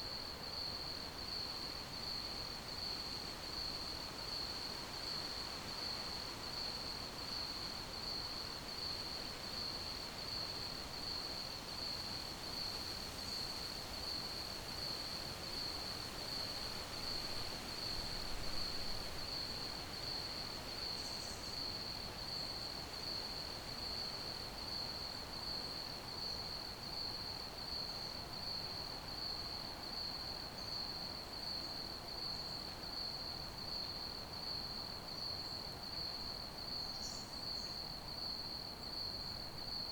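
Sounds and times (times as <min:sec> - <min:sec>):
crickets chirping: 0:16.3 - 0:39.9.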